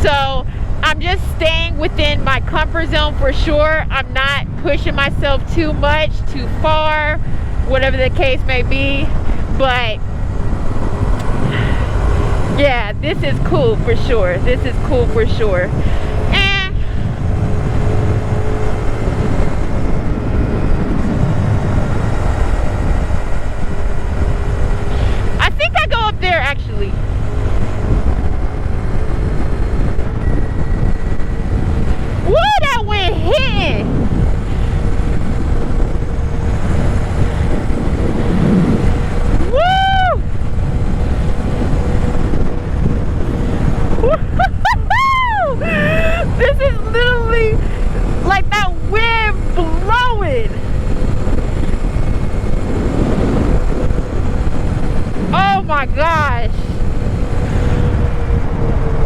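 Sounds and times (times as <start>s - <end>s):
motorcycle engine running: 0.0s - 44.5s, 45.5s - 59.0s
wind buffeting microphone: 0.0s - 59.0s
vocal ooh glides: 44.0s - 46.9s.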